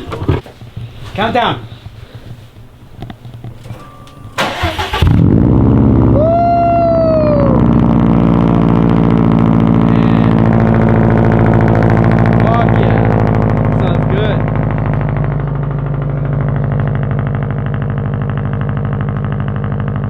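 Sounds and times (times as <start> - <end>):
car engine starting and idling: 2.6 - 20.0
rising and falling tone: 3.9 - 18.0.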